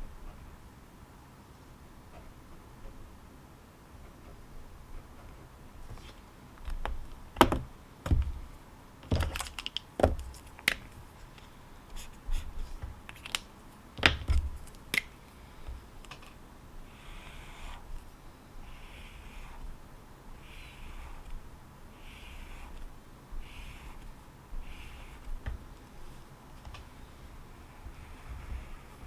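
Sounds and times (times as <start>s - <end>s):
soft rustles: 4.0s - 6.4s, 19.2s - 29.0s.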